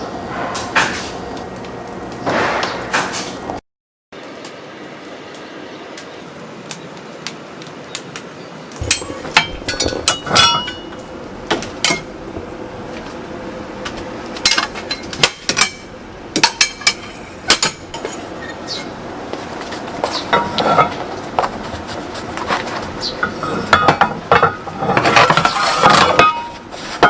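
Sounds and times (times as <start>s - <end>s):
metal kitchenware knocking and clinking: 8.9s - 10.9s.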